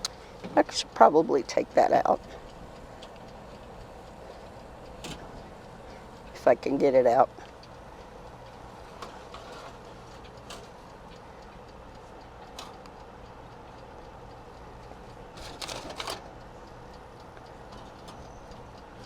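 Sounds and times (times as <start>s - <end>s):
faint steady hum: 0.0s - 19.0s
metallic rattling in oven: 4.4s - 6.9s, 8.4s - 11.1s, 15.3s - 16.3s.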